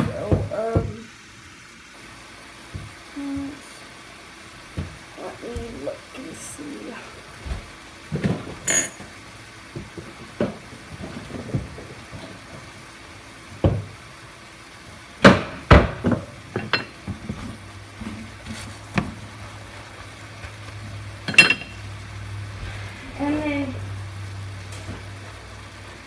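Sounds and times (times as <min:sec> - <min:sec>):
low steady hum: 0:00.0 - 0:26.0
cookware knocking and clattering: 0:08.3 - 0:09.1, 0:15.3 - 0:17.0, 0:21.2 - 0:21.8.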